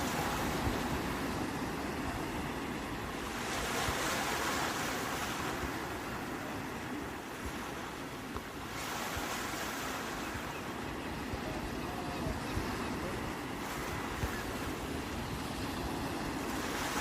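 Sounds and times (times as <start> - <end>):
sea waves breaking on shore: 0.0 - 17.0.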